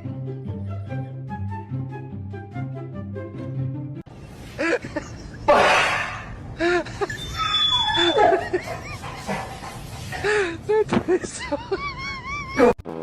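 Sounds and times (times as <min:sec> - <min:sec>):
people laughing: 0:06.6 - 0:09.7, 0:11.1 - 0:12.8.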